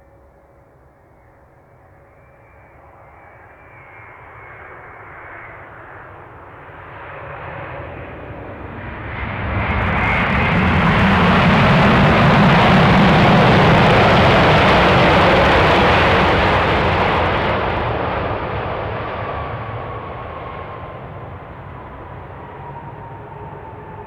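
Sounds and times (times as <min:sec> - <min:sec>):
jet engines roaring: 0:04.1 - 0:24.0
faint high whine: 0:09.1 - 0:17.6.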